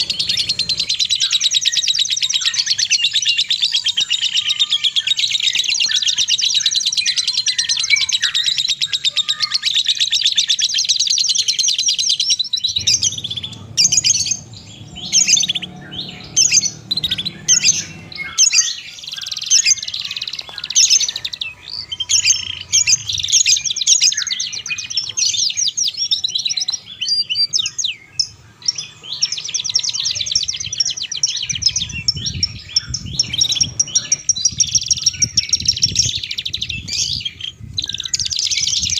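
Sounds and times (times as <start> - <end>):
songbird chirps and trills: 0.0 - 38.9
faint low rumble: 12.6 - 18.5.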